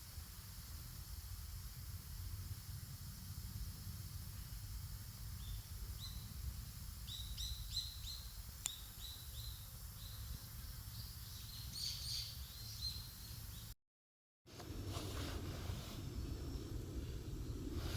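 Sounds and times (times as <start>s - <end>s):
steady low rumble: 0.7s - 8.6s, 14.6s - 17.9s
small bird chirping: 5.3s - 13.7s.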